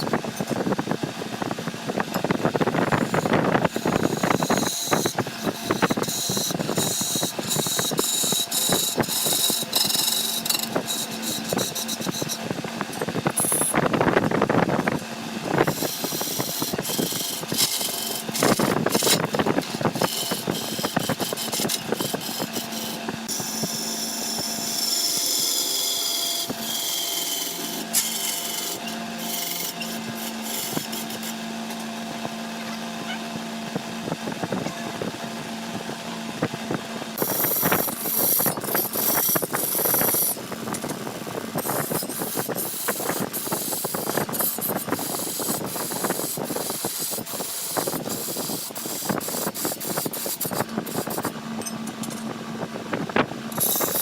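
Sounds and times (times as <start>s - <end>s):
wood lathe motor hum: 1.0s - 33.6s, 35.2s - 52.1s, 53.3s - 54.0s
sharp clicks and rasping: 2.1s - 14.1s, 14.8s - 23.4s, 37.2s - 52.3s
cutting tool scraping wood: 2.8s - 13.8s, 15.0s - 31.8s, 37.2s - 41.0s, 41.6s - 51.4s, 53.5s - 54.0s.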